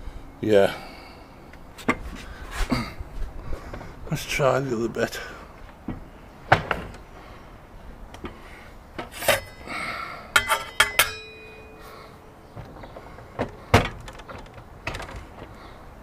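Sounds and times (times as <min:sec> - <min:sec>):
short metallic ring: 0:09.2 - 0:09.7, 0:10.3 - 0:12.4
tools knocking and clicking: 0:10.4 - 0:11.7.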